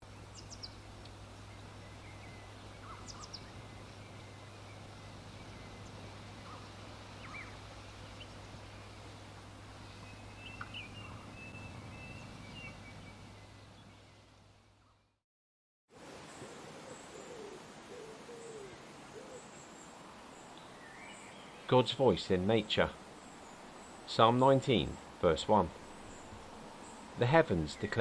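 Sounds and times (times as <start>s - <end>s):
low hum: 0.0s - 14.5s
steady hiss: 0.0s - 14.7s, 18.8s - 28.0s
bird chirps and trills: 0.0s - 15.0s.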